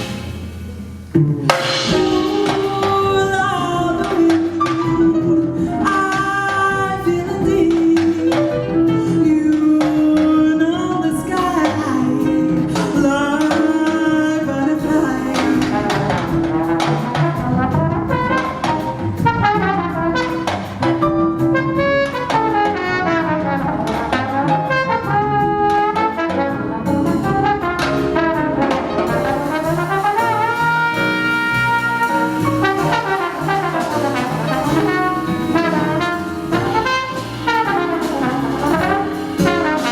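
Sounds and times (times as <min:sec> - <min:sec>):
jazz band playing: 0:00.0 - 0:39.9
trumpet melody: 0:14.8 - 0:39.9.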